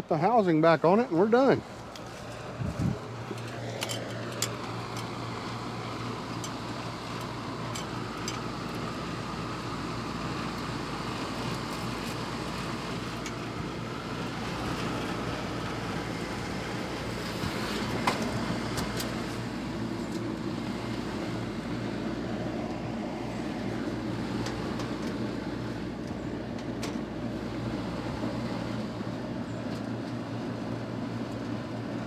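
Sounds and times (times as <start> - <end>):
air conditioner unit humming: 0.0 - 32.0.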